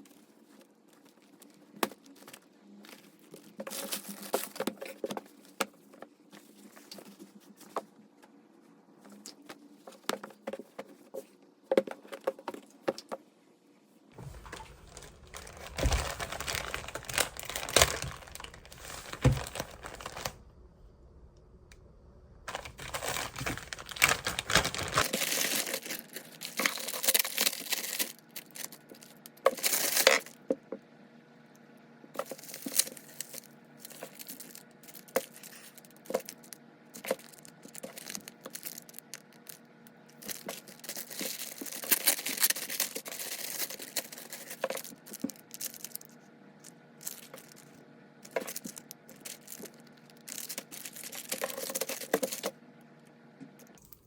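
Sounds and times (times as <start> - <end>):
crinkly material rustling and tearing: 0.0 - 5.6, 14.2 - 20.4, 22.5 - 30.3, 40.2 - 46.1, 47.0 - 52.5.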